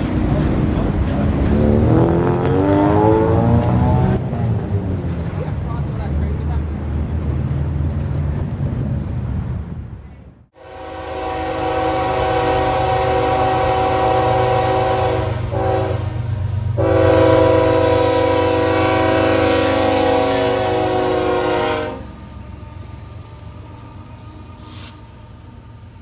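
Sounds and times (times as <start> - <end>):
freight train rumble: 0.0 - 26.0
locomotive air horn blasts: 10.6 - 22.2.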